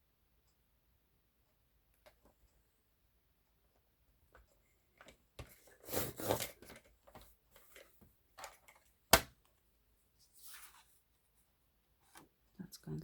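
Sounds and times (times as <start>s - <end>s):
paper rustling: 10.2s - 11.1s.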